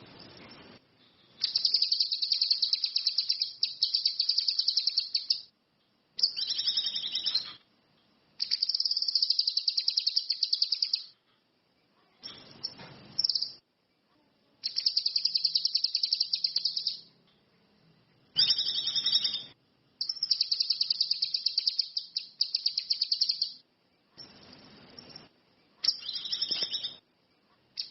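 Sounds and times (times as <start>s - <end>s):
songbird trilling: 1.4s - 5.5s, 6.2s - 7.6s, 8.4s - 11.1s, 14.6s - 17.1s, 18.4s - 23.6s.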